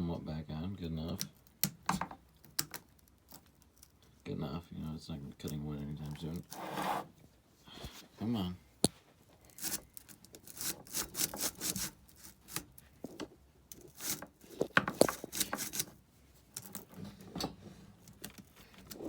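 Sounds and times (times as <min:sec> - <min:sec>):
metal and plastic parts knocking: 0:01.6 - 0:02.8, 0:12.6 - 0:15.9
hands scraping chainsaw parts: 0:05.4 - 0:07.2, 0:09.5 - 0:17.2.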